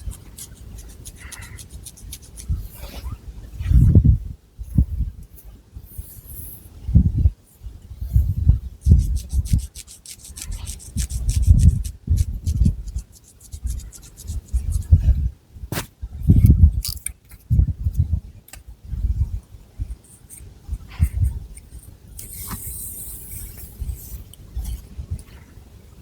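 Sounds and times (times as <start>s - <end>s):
fingernails scratching through hair: 0.0s - 3.0s, 8.8s - 15.0s.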